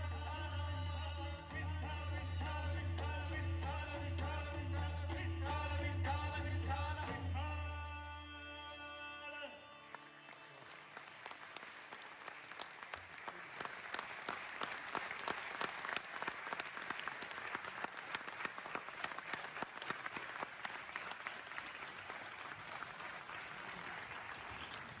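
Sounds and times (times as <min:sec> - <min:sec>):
audience applauding: 0:09.9 - 0:25.0.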